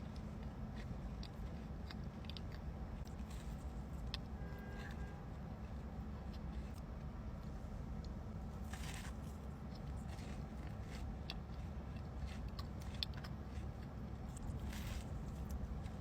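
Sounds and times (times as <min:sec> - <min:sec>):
chewing clicks and crunches: 0:00.0 - 0:05.0, 0:07.4 - 0:16.0
low steady hum: 0:00.0 - 0:16.0.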